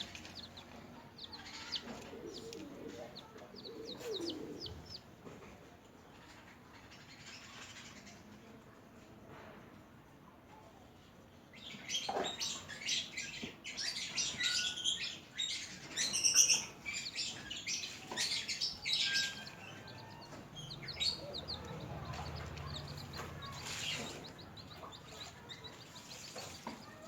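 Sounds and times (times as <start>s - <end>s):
chicks peeping: 0.0s - 5.2s, 11.5s - 27.0s.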